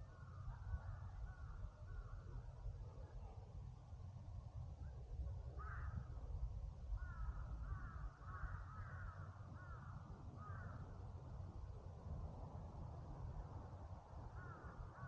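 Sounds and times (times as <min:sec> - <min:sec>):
crow cawing: 0:05.6 - 0:06.0, 0:07.0 - 0:10.8, 0:14.4 - 0:15.0.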